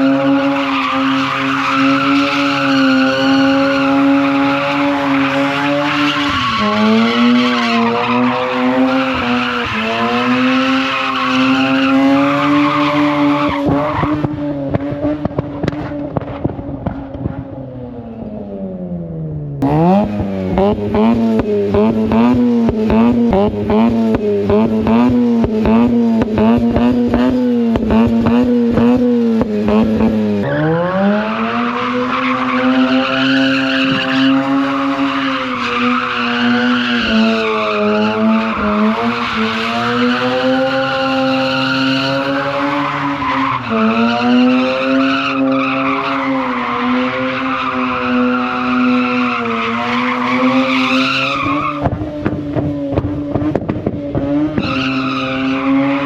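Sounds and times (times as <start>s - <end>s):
rotary engine at high revs: 0.0s - 17.4s, 19.6s - 56.0s.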